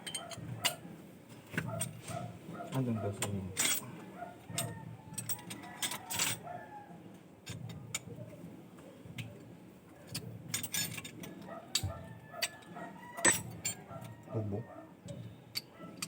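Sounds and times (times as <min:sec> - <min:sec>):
light metallic clinks and taps: 0:03.2 - 0:03.9, 0:10.1 - 0:14.2.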